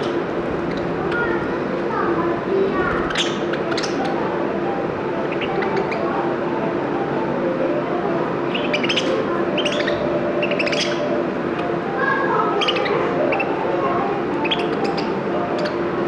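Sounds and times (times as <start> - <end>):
pet bird chirping: 0.0 - 4.4, 5.1 - 6.2, 8.5 - 11.8, 12.4 - 13.7, 14.4 - 15.9.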